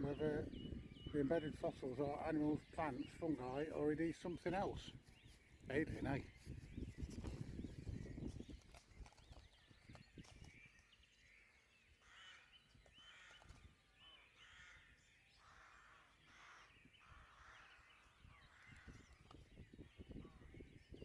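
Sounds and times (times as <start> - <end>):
crow cawing: 12.0 - 13.4, 14.4 - 19.0.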